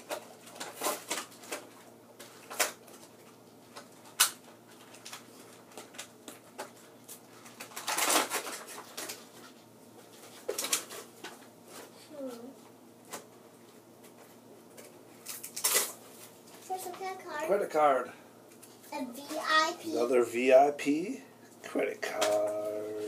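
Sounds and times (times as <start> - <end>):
packaging rustling: 0.0 - 11.9, 14.0 - 16.8.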